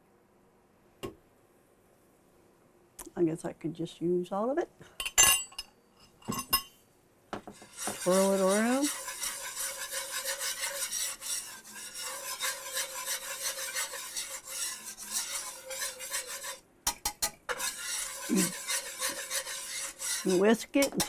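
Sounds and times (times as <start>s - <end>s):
whisk scraping a skillet: 7.4s - 21.0s
whisk tapping: 7.4s - 21.0s.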